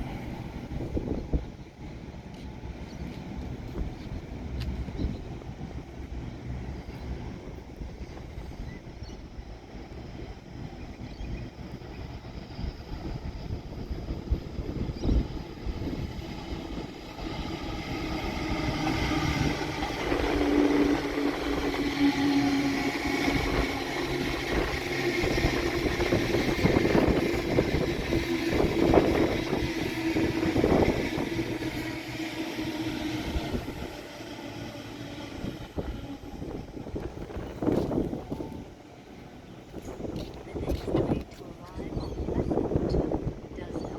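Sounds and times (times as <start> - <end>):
train passing clatter: 0.0 - 43.9.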